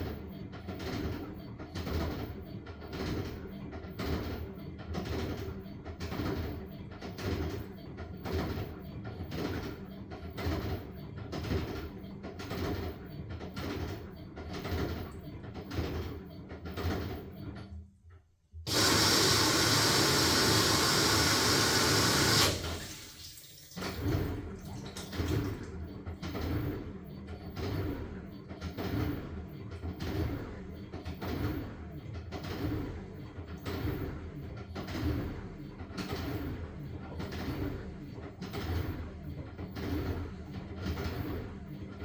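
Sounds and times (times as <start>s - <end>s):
washing machine tumbling laundry: 0.0s - 17.8s, 18.5s - 42.0s
water rushing into washing machine: 18.7s - 26.9s.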